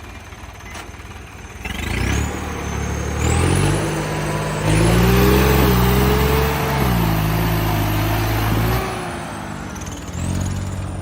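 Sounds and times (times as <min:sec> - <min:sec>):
tractor diesel engine revving: 0:00.0 - 0:11.0.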